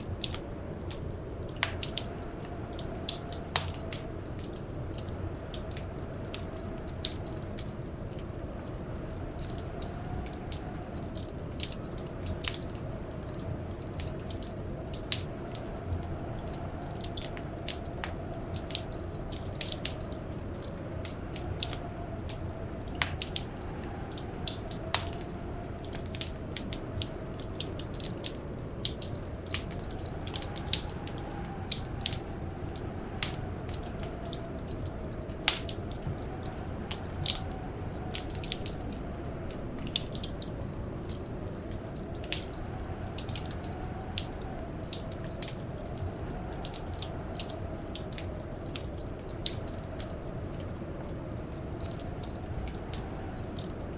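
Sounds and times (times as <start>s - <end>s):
faint blizzard wind howling: 0.0s - 53.9s
wood fire crackling: 0.0s - 53.9s.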